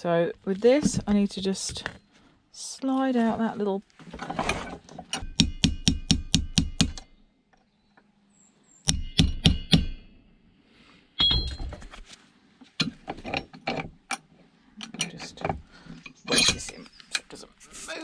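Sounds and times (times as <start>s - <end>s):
metal tapping on metal: 5.0s - 7.1s, 8.9s - 10.1s.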